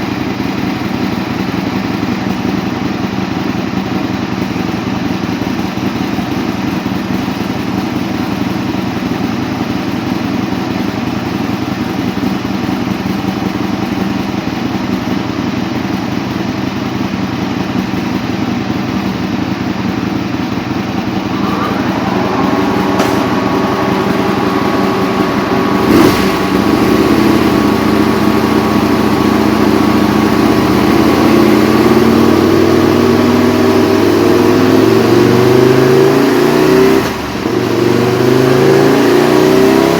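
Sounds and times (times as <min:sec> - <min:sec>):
motorcycle engine idling: 0:00.0 - 0:34.0
steady whine: 0:20.6 - 0:32.6.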